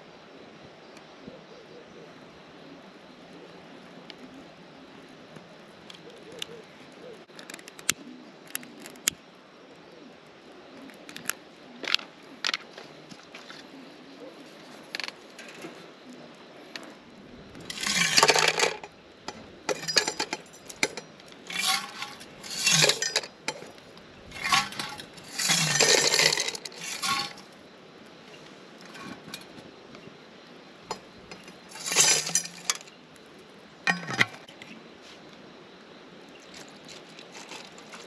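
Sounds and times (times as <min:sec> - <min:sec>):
hard objects clinking: 0:17.6 - 0:27.5, 0:30.9 - 0:32.9.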